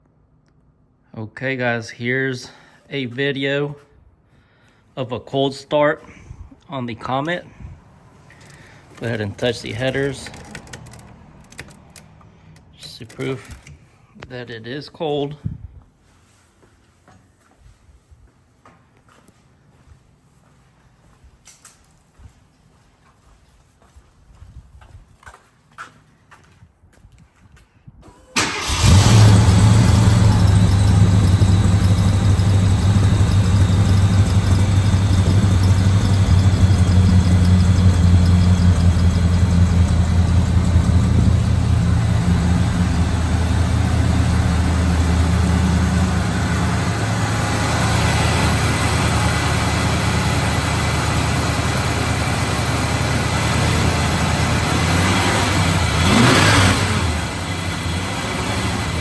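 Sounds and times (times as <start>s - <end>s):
car engine starting and idling: 8.2s - 13.2s, 28.4s - 59.0s
engine revving: 28.4s - 59.0s.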